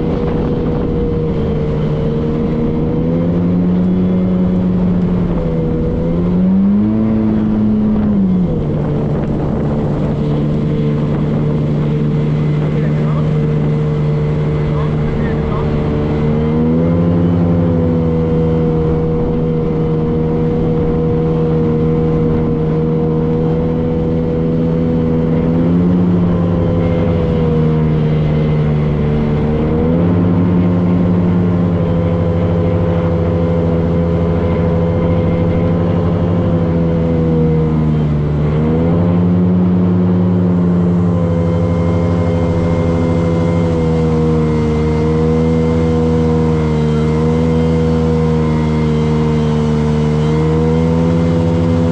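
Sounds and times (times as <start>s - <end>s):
motorboat engine running: 0.0s - 51.9s.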